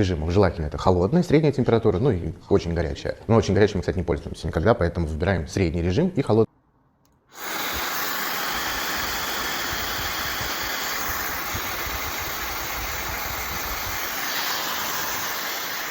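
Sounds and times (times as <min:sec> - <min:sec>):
hair dryer blowing air: 0:07.3 - 0:15.9.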